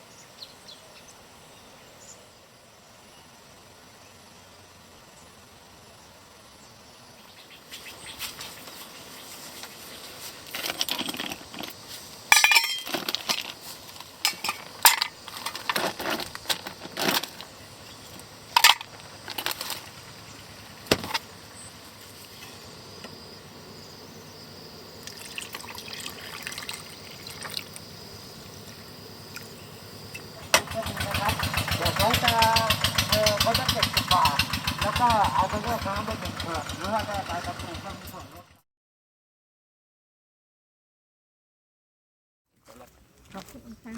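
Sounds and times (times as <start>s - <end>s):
faint clatter: 10.4s - 17.5s
small hard objects clinking: 10.5s - 17.5s, 18.5s - 20.0s.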